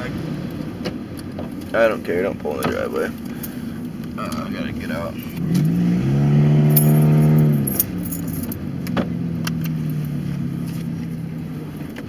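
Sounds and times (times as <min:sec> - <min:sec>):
unmuffled car exhaust droning: 0:00.0 - 0:12.0
sharp clicks and jangle: 0:06.7 - 0:08.6.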